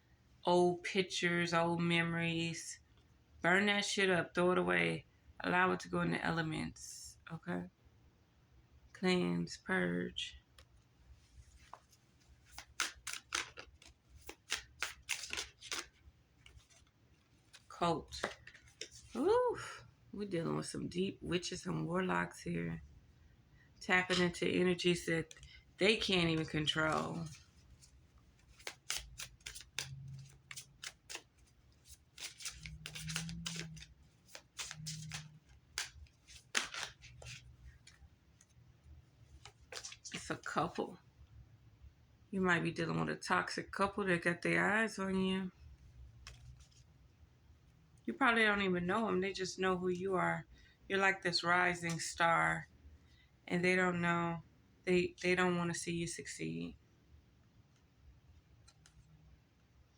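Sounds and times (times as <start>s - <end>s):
cards clicking and snapping: 12.5s - 16.8s, 28.5s - 37.4s.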